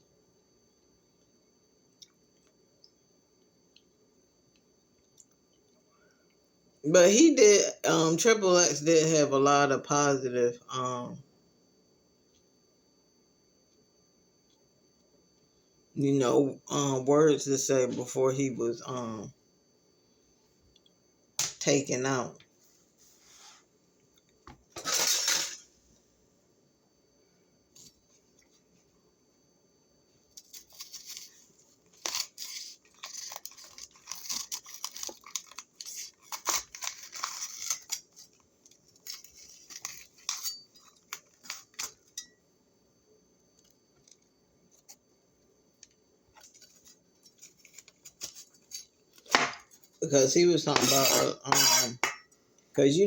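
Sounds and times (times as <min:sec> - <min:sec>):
crunching while eating: 0:30.4 - 0:42.1, 0:46.4 - 0:49.9.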